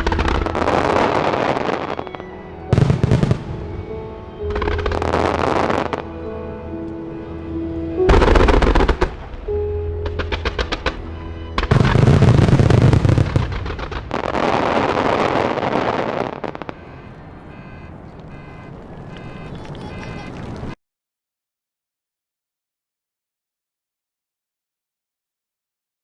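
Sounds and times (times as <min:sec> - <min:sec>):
fireworks booming and crackling: 0:00.0 - 0:06.2, 0:08.1 - 0:20.8
music playing: 0:00.0 - 0:20.7.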